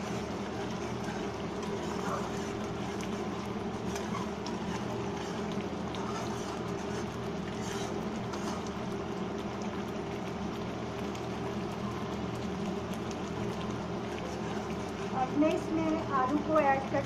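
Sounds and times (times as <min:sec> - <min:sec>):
low machine hum: 0:00.0 - 0:17.0
paste bubbling in oil: 0:00.0 - 0:17.0.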